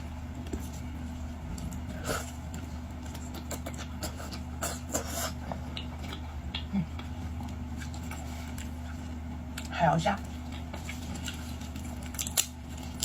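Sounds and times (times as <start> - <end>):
shellfish shells crackling: 11.2 - 13.0.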